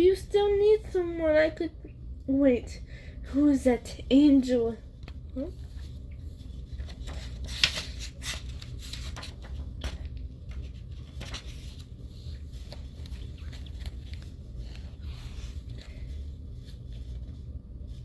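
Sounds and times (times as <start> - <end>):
steady low hum: 0.0 - 18.0
paper pages rustling and turning: 4.9 - 18.0.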